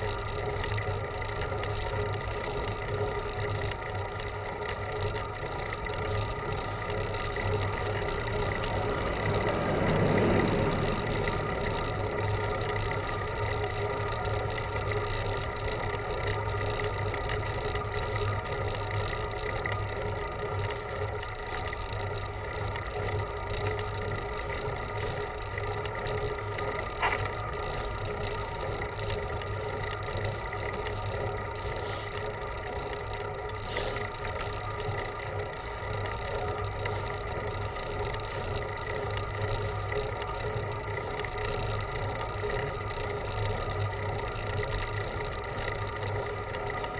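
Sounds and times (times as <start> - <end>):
constant low hum: 0.0 - 46.9
wind and road rush: 7.7 - 13.4.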